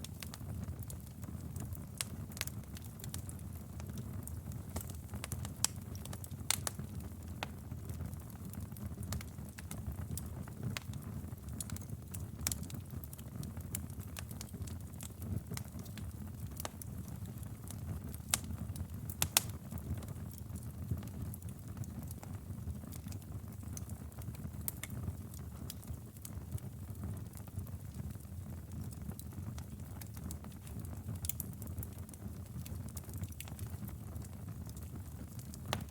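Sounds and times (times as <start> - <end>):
burning wood crackling and popping: 0.0 - 35.9
low rumble of flames: 0.0 - 35.9.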